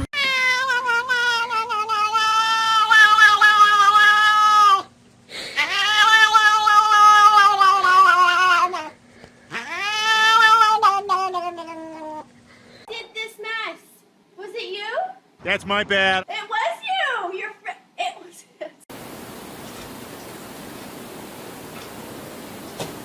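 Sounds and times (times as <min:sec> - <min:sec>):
cat yowling: 0:00.1 - 0:04.9, 0:05.6 - 0:08.9, 0:09.5 - 0:12.3.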